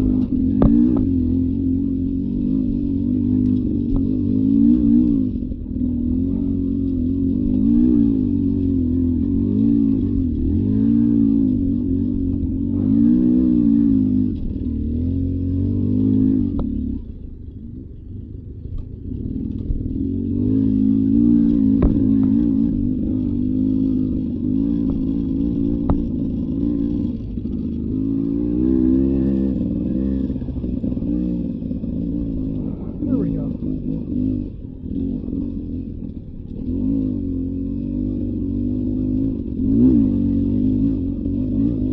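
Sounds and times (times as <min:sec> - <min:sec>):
dirt bike engine revving: 0:00.0 - 0:17.2, 0:19.0 - 0:41.9.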